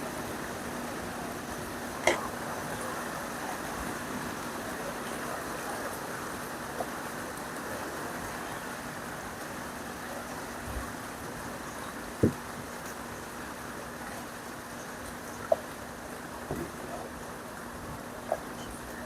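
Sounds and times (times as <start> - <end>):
faint steady hum: 0.0 - 19.0
heavy rain: 0.0 - 19.0.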